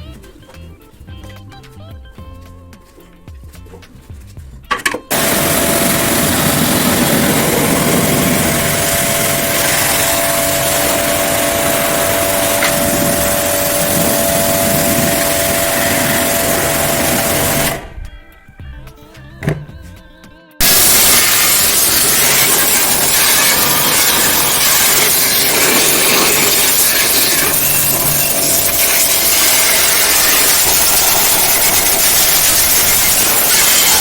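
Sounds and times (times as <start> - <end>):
pressure washer spraying: 5.1 - 17.9, 20.6 - 34.0.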